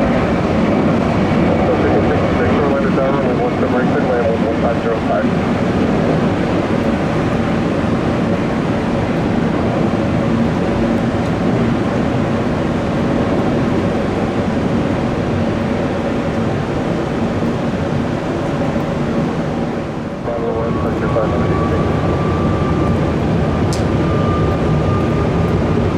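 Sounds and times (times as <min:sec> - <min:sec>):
jet engines running: 0:00.0 - 0:25.9.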